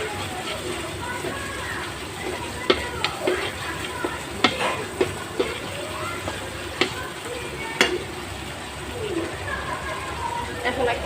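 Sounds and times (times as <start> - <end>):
spoon stirring gravy in a pan: 0.0 - 8.7
low sizzle: 0.0 - 11.0
spoon knocking against pan: 2.2 - 7.1, 7.8 - 8.1.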